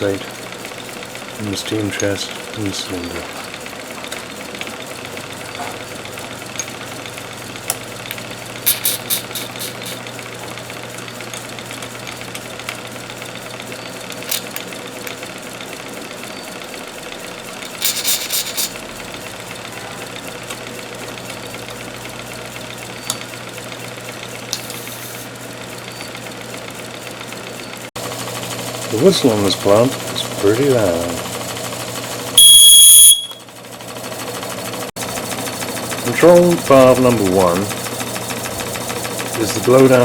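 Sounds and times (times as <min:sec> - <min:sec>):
steam engine running: 0:00.0 - 0:40.0
steam hissing spurts: 0:08.6 - 0:10.0, 0:17.8 - 0:18.9.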